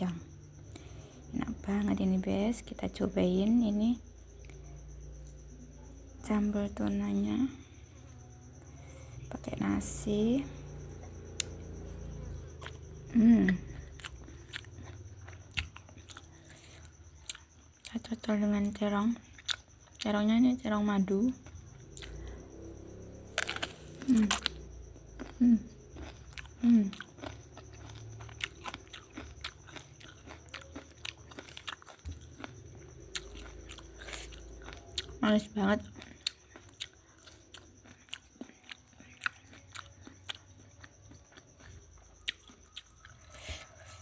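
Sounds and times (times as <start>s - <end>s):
close-up chewing: 10.7s - 20.2s, 21.2s - 44.0s.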